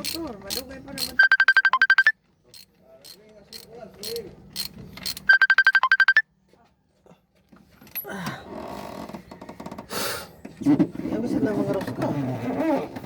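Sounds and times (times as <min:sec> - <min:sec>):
phone ringtone beeps: 0:01.2 - 0:02.2, 0:05.2 - 0:06.2.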